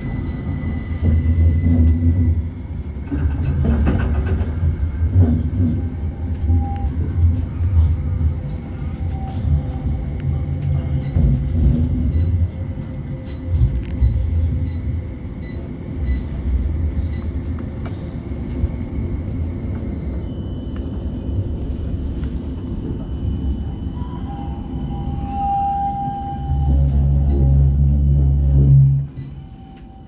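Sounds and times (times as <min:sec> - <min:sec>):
tram running rumble: 0:00.0 - 0:30.0.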